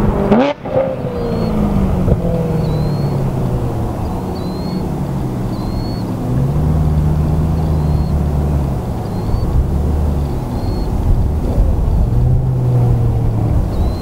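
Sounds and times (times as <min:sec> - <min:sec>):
distant car engine droning: 0:00.0 - 0:14.0
wind rumble on microphone: 0:00.0 - 0:14.0
short high chirps: 0:02.6 - 0:03.2, 0:04.0 - 0:06.2.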